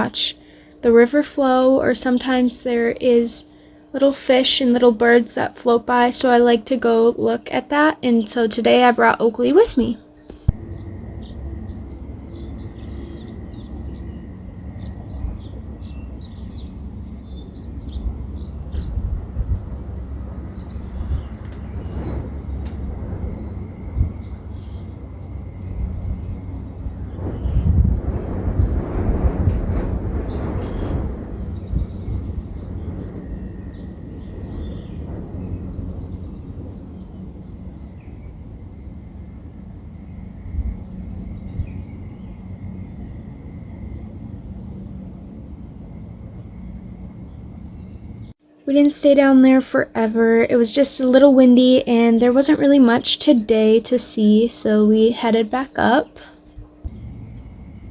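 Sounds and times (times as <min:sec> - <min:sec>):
small birds chirping: 0:08.1 - 0:53.7, 0:54.5 - 0:57.9
wind rumbling on microphone: 0:08.7 - 0:48.4, 0:56.5 - 0:57.9.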